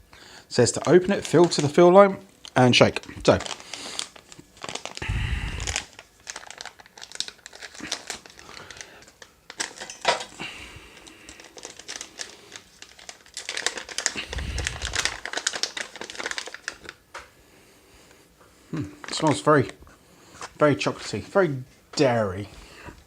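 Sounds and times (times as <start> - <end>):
plastic pouch crinkling: 0.6 - 17.2, 19.0 - 19.8.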